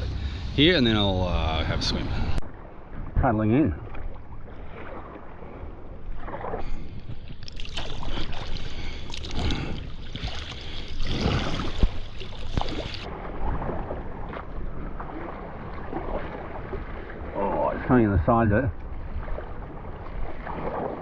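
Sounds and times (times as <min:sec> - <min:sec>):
water moving along hull: 0:00.0 - 0:21.0
paddle splashing in water: 0:03.8 - 0:18.0, 0:18.8 - 0:21.0.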